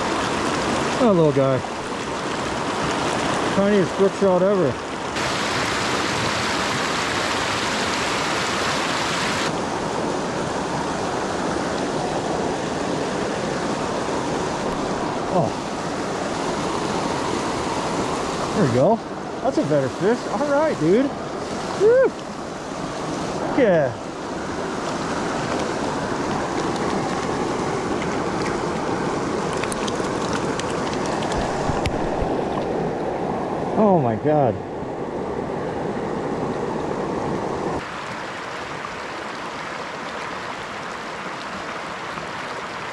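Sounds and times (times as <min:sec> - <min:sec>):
creek running over rocks: 0:00.0 - 0:34.6, 0:36.3 - 0:42.9
faint water splashing ticks: 0:24.8 - 0:32.0.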